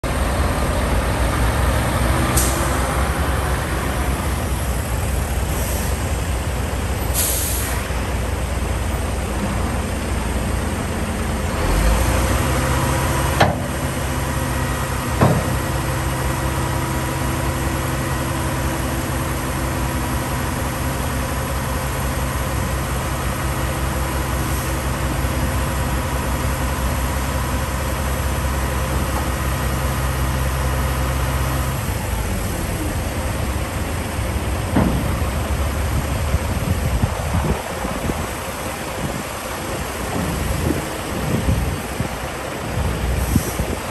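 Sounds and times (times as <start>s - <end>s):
diesel truck engine idling: 0.0s - 43.9s
air brake hisses: 5.5s - 6.1s, 7.1s - 7.9s.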